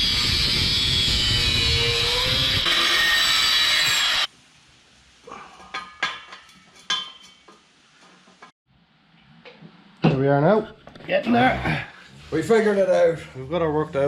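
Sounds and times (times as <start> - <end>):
angle grinder cutting steel: 0.0 - 4.3
metal taps and clinks: 5.7 - 8.4.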